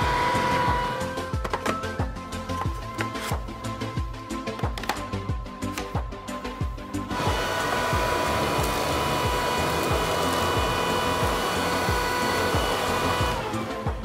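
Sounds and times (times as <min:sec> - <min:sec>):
vacuum cleaner whining: 0:00.0 - 0:01.6, 0:07.0 - 0:14.0
background music with beat: 0:00.0 - 0:14.0.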